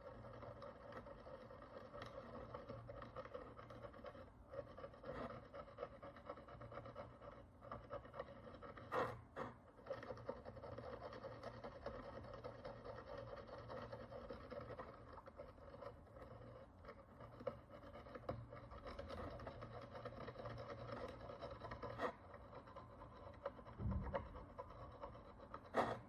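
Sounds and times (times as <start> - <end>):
steady low hum: 21.2 - 26.0
soft low thump: 23.8 - 24.5.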